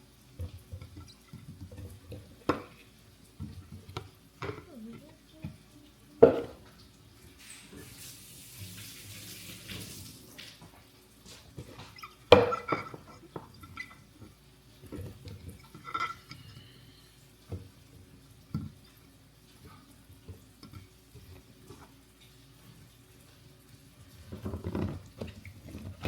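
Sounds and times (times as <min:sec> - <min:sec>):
dishes clattering: 0:06.2 - 0:06.8, 0:11.8 - 0:14.1, 0:14.9 - 0:16.6.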